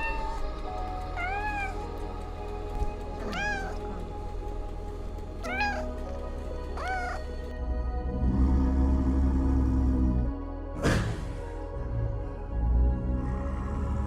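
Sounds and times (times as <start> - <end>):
cat meowing: 0.0 - 2.0, 3.1 - 4.0, 5.4 - 7.3
background music: 0.0 - 14.0.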